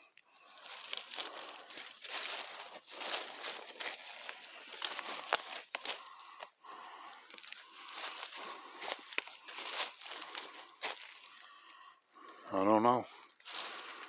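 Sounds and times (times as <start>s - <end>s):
twigs snapping: 0.1s - 6.5s, 7.2s - 12.2s, 13.2s - 14.0s
footsteps on dry leaves: 0.4s - 11.6s, 13.1s - 14.0s.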